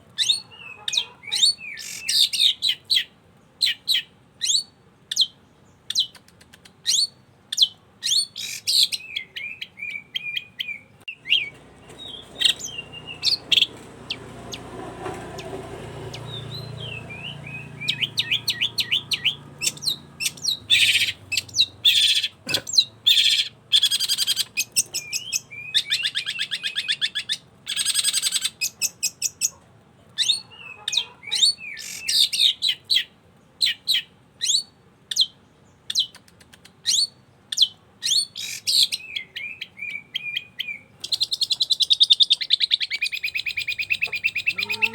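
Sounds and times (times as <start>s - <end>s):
bird singing sharp chips and trills: 0.1s - 14.7s, 15.3s - 29.6s, 30.2s - 44.9s.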